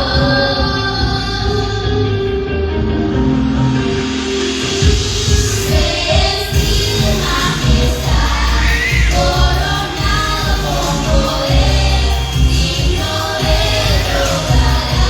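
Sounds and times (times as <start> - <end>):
band with steady bass: 0.0 - 15.0
voices singing: 5.4 - 15.0.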